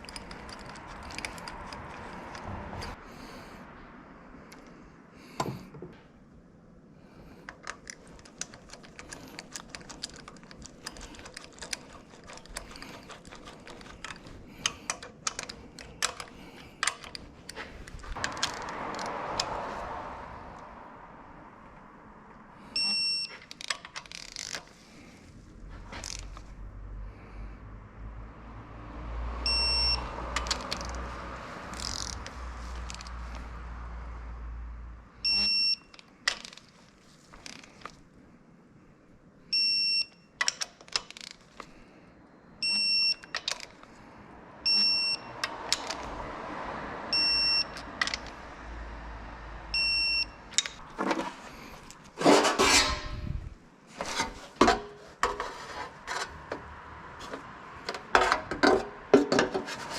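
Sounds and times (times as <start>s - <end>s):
metallic clattering and scraping: 0.0s - 3.0s, 7.4s - 19.9s, 50.5s - 59.9s
short electronic beeps: 22.8s - 23.3s, 29.5s - 30.0s, 35.2s - 35.9s, 42.6s - 43.3s, 44.7s - 45.3s, 47.1s - 47.8s, 49.8s - 50.4s.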